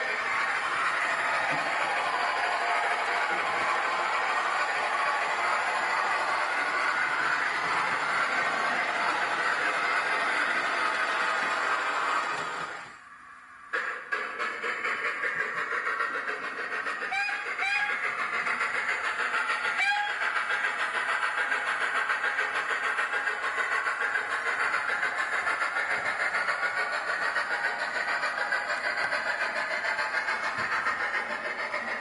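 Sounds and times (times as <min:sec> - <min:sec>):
model steam exhaust chuffs: 0:00.0 - 0:32.0
whistle toots: 0:17.1 - 0:18.0, 0:19.8 - 0:20.2.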